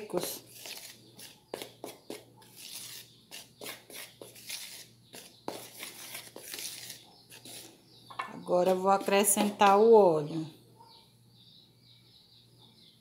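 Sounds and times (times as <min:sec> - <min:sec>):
spoon scraping plastic bowl: 0:00.0 - 0:09.8.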